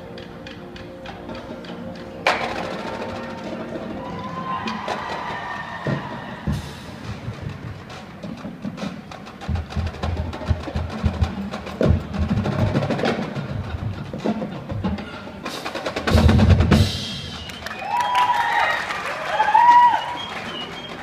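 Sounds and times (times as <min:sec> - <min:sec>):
snare and bass drum rolls: 0:15.6 - 0:17.6.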